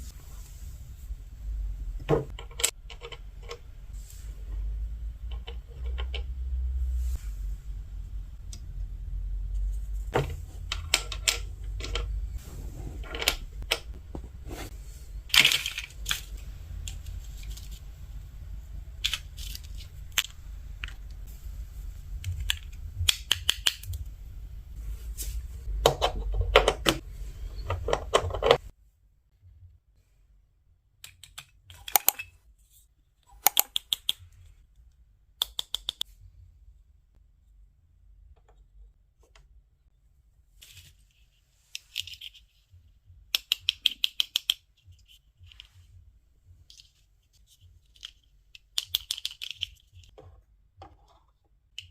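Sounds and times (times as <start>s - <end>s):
low hum: 0.0s - 28.7s
plastic toy parts clicking: 19.0s - 21.1s, 22.2s - 24.0s, 31.0s - 32.4s, 33.2s - 34.2s, 35.4s - 36.0s, 43.3s - 45.7s, 47.8s - 50.1s.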